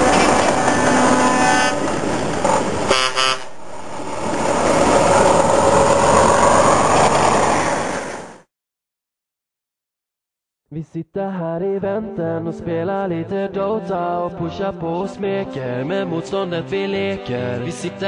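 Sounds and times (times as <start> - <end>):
heavy truck running: 0.0 - 8.4
truck horn blasts: 0.5 - 2.1, 2.8 - 3.6.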